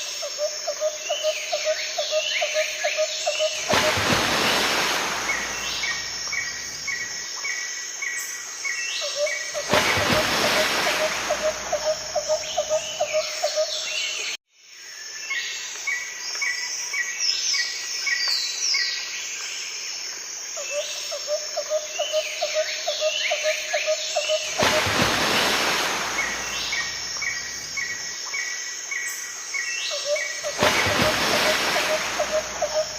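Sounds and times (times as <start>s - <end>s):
birds calling falling notes: 30.4s - 32.9s.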